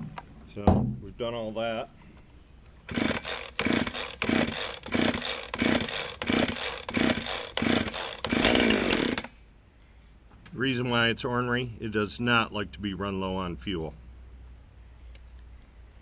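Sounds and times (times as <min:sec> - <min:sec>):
chainsaw engine burst: 0:02.9 - 0:09.4
chainsaw starter cord pulls: 0:02.9 - 0:09.4.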